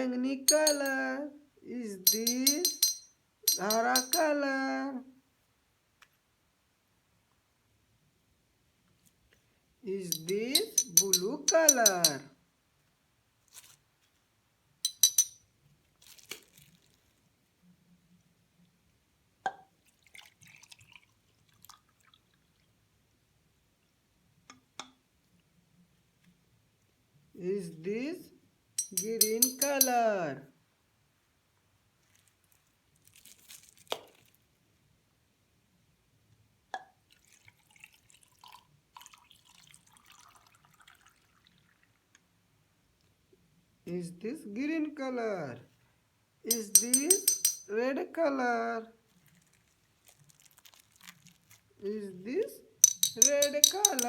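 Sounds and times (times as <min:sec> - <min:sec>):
water drip plink: 0:10.1 - 0:12.2, 0:52.8 - 0:54.0
plastic bag crackles: 0:13.4 - 0:13.8, 0:15.9 - 0:17.2, 0:32.1 - 0:34.4, 0:49.1 - 0:51.7
water dripping and crackling: 0:15.9 - 0:17.2, 0:19.8 - 0:22.7, 0:37.1 - 0:42.2, 0:49.1 - 0:51.8.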